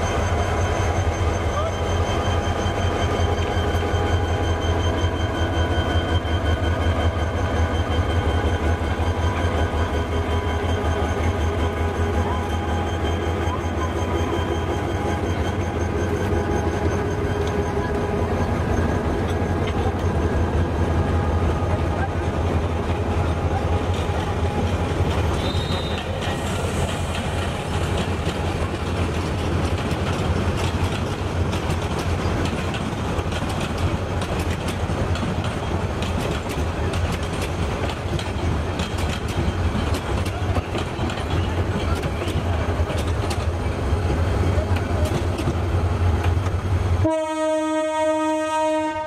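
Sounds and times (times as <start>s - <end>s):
diesel locomotive engine drone: 0.0s - 49.0s
train wheels clacking over rail joints: 22.3s - 46.6s
wheel squeal: 25.2s - 27.4s.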